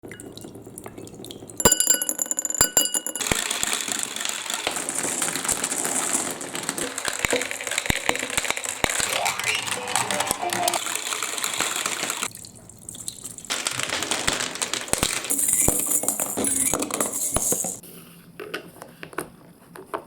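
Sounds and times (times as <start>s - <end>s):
bright ringing clinks: 1.6s - 3.6s
marbles rattling on plastic track: 1.6s - 9.0s, 13.5s - 17.8s
water running down marble run: 10.8s - 17.6s.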